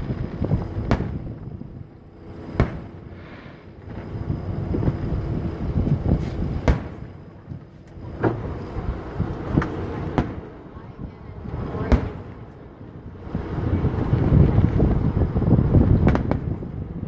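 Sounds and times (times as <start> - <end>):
low rumble: 0.0 - 17.0
faint firework pops: 0.8 - 1.2, 2.6 - 2.9, 6.6 - 7.0, 16.0 - 16.5
firework shells bursting: 2.5 - 4.0.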